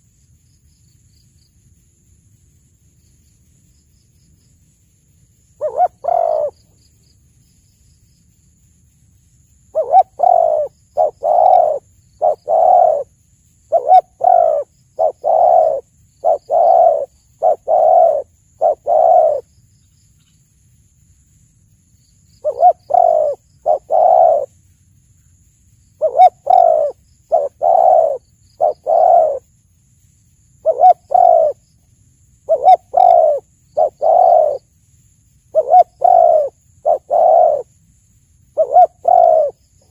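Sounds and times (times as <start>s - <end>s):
dove cooing: 5.6s - 6.6s, 9.7s - 13.1s, 13.7s - 19.5s, 22.4s - 24.5s, 26.0s - 29.4s, 30.6s - 31.6s, 32.5s - 34.7s, 35.5s - 37.7s, 38.6s - 39.9s.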